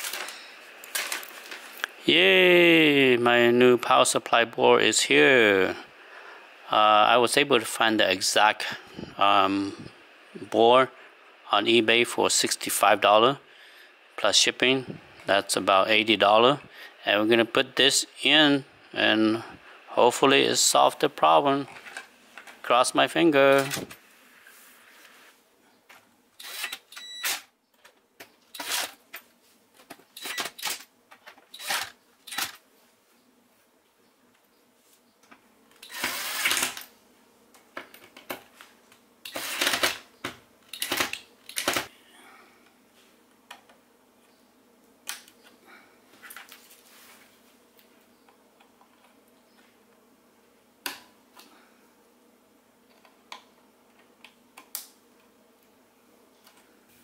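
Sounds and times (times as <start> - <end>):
rustling and clicking handling noises: 0.0 - 2.0, 45.1 - 49.8.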